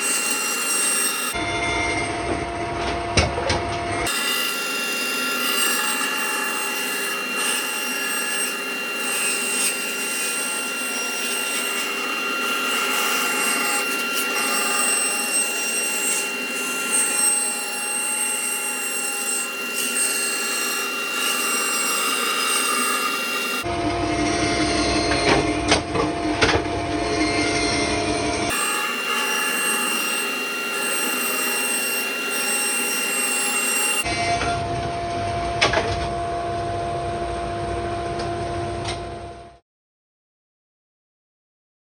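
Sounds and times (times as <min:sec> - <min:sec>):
power tool cutting wood: 0:00.0 - 0:02.3, 0:03.9 - 0:34.7.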